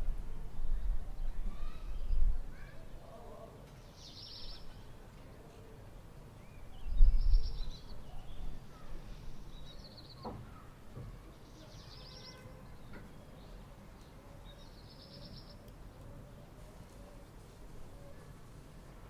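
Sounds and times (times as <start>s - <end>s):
outdoor ambience: 0.0s - 19.0s
songbirds singing trilled phrases: 3.6s - 5.0s, 6.4s - 10.6s, 11.3s - 16.2s.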